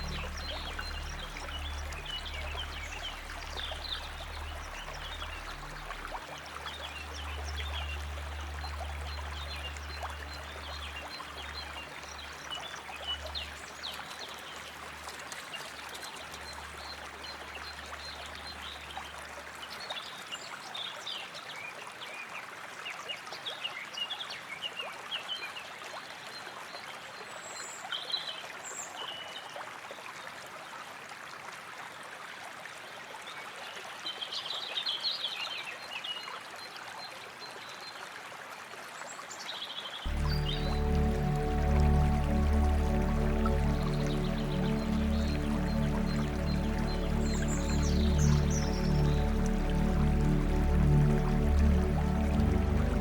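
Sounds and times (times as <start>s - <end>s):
ambient music drone: 0.0s - 18.7s, 40.1s - 53.0s
chirping birds or frogs: 0.0s - 19.9s, 40.1s - 53.0s
water trickling: 0.0s - 21.4s, 40.1s - 53.0s.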